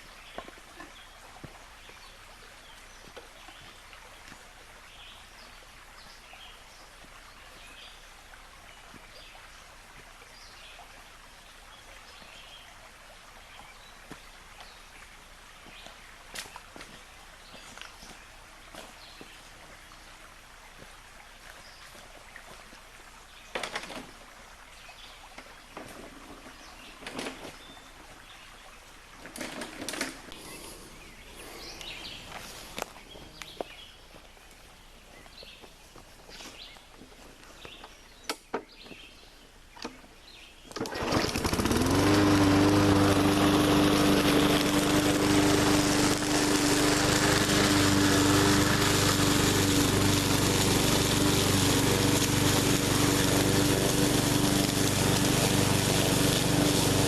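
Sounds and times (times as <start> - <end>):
lawn mower engine: 40.7 - 57.0.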